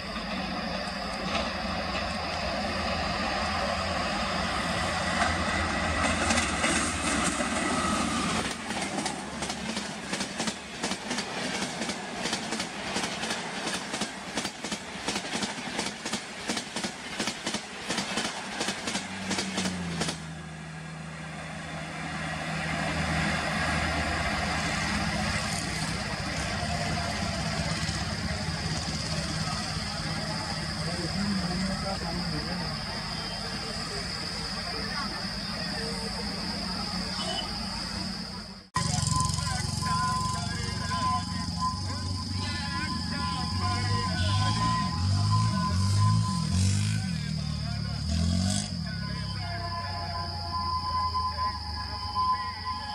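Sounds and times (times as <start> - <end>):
train passing rush: 0.0 - 52.9
train wheels clickety-clack: 5.2 - 20.3.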